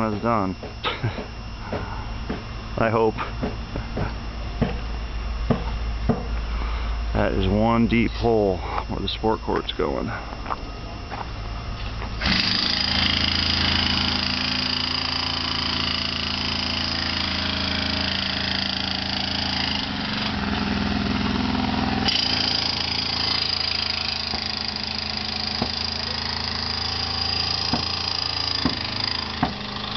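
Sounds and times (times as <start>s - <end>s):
machinery engine running: 0.0s - 29.9s
sharp knocks: 3.4s - 4.8s, 5.5s - 6.4s, 27.7s - 28.0s, 28.6s - 29.6s.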